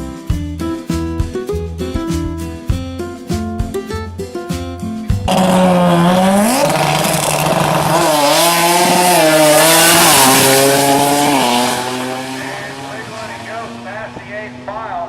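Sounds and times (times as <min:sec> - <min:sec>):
car engine revving hard: 0:05.3 - 0:14.8.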